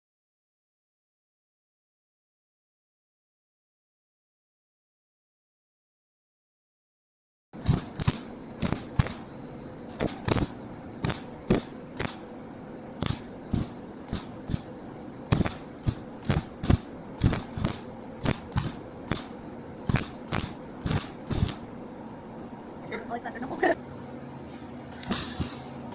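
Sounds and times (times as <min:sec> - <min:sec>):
steady background hum: 0:07.6 - 0:25.9.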